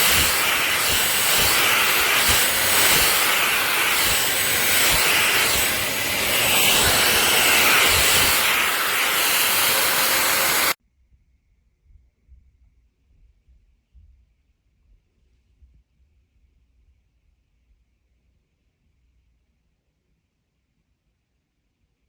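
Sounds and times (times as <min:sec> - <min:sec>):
cordless stick vacuum running: 0:00.0 - 0:10.8.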